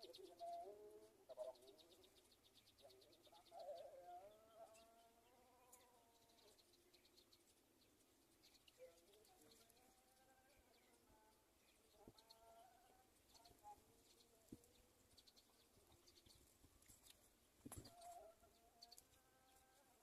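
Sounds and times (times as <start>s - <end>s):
faint animal calls: 0.0s - 6.8s.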